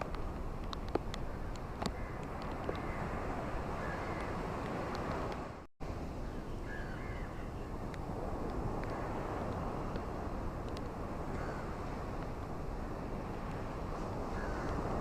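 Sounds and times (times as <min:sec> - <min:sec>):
ocean waves on beach: 0:00.0 - 0:15.0
faint bird calls: 0:06.2 - 0:07.7.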